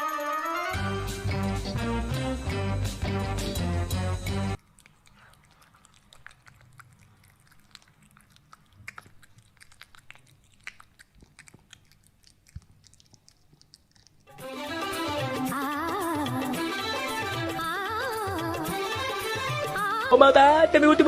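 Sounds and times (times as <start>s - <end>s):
animal chewing crunchy food: 4.6s - 16.5s.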